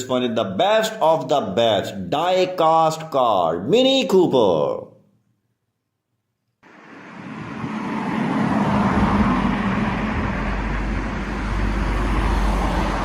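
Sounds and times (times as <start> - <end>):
vehicle engine rumbling: 6.6 - 13.0.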